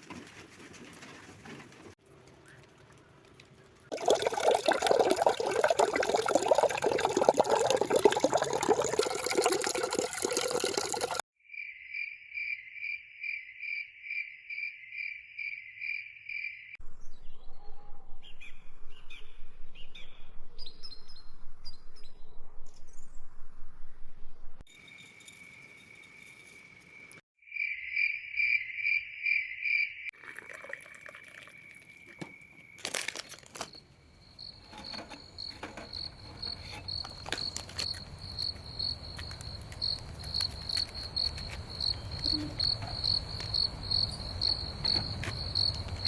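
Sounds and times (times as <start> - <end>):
crickets chirping: 24.7 - 46.0.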